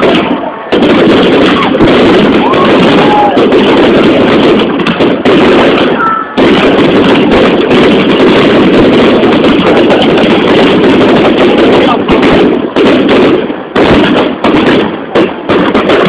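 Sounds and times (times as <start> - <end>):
people's voices: 0.0 - 4.8, 9.1 - 13.8
fireworks crackling: 0.0 - 16.0.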